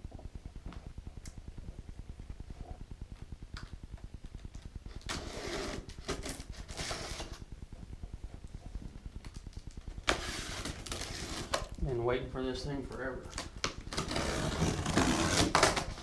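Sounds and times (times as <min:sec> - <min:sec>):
fast low pulsing: 0:00.0 - 0:05.2, 0:05.9 - 0:11.1.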